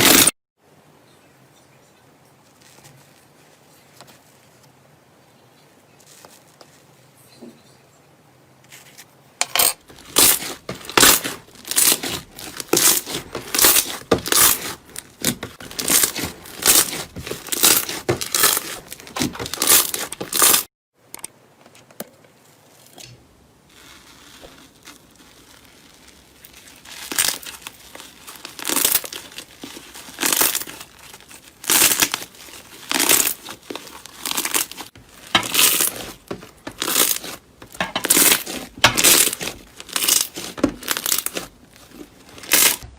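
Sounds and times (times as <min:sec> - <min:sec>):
slime squishing and crackling: 0:09.8 - 0:20.7, 0:23.7 - 0:42.9.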